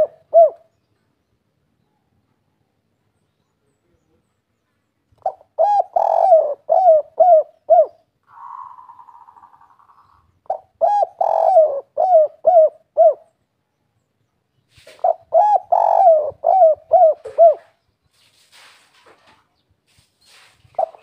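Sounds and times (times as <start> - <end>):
dove cooing: 0.0 - 0.7, 5.2 - 13.3, 14.8 - 17.8, 20.8 - 21.0.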